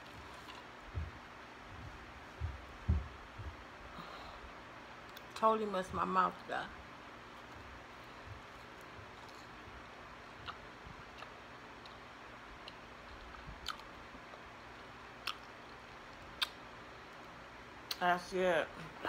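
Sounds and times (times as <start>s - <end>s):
person chewing fries: 0.0s - 0.8s, 7.3s - 16.6s.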